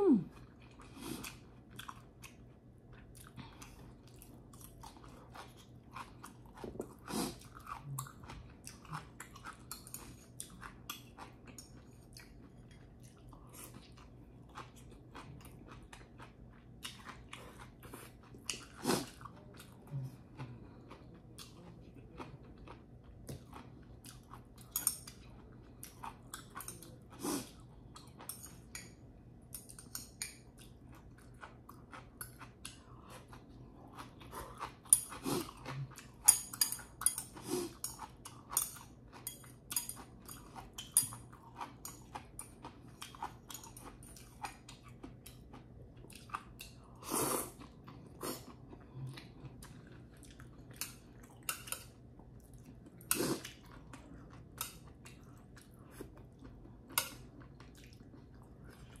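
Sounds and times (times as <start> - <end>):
chewing pasta: 0.0 - 59.0.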